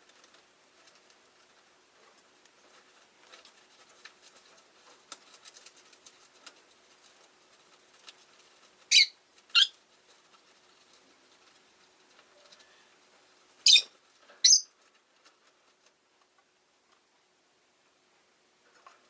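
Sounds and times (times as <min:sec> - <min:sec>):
faint clicking and pattering: 0:00.0 - 0:18.0, 0:18.6 - 0:19.0
high-pitched bird calls: 0:08.9 - 0:09.7, 0:13.6 - 0:14.7.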